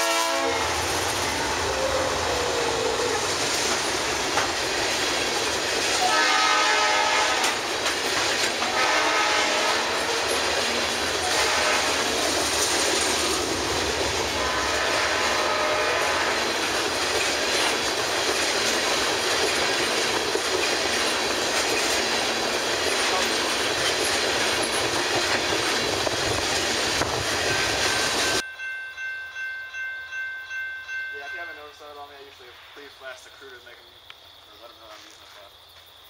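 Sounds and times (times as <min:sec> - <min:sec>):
freight train wheels rumbling: 0:00.0 - 0:33.9
ringing chime: 0:27.5 - 0:32.4.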